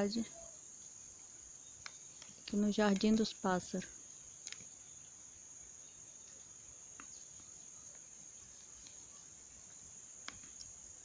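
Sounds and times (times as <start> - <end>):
crickets trilling: 0.0 - 11.0
small clicks: 1.8 - 3.3, 4.4 - 4.7.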